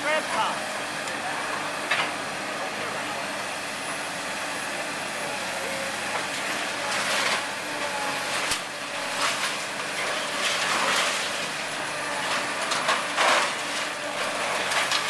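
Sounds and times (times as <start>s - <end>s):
diesel engine running: 0.0s - 15.0s
debris crunching and scraping: 12.2s - 15.0s.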